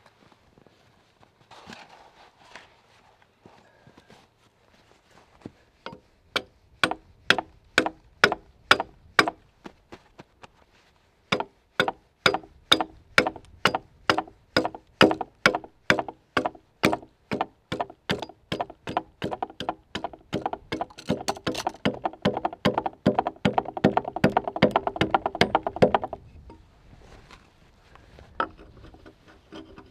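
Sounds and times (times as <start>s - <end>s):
axe chopping log: 6.4s - 9.4s, 11.3s - 26.2s.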